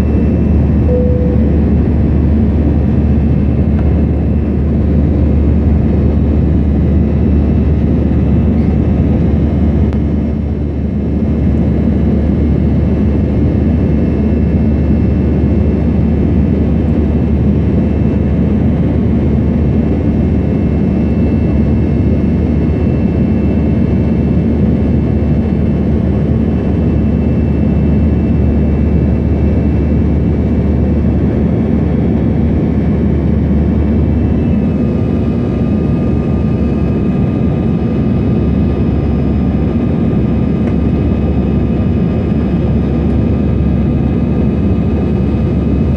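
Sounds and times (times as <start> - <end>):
faint high engine tones: 0.0 - 6.2
jet engines rumbling: 0.0 - 45.9.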